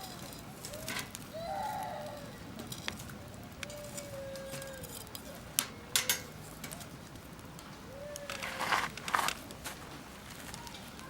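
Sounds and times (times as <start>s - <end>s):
campfire burning: 0.0s - 11.0s.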